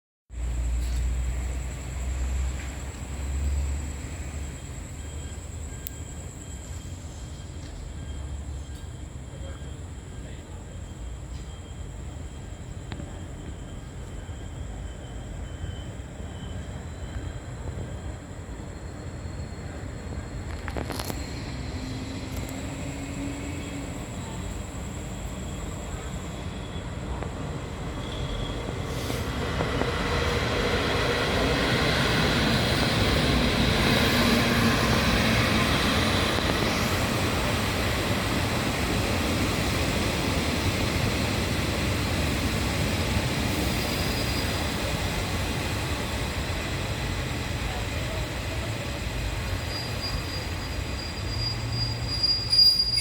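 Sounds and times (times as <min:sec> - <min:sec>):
train wheels rumbling: 0:00.3 - 0:53.0
high wheel squeal: 0:19.0 - 0:42.0, 0:42.8 - 0:45.0, 0:49.4 - 0:53.0.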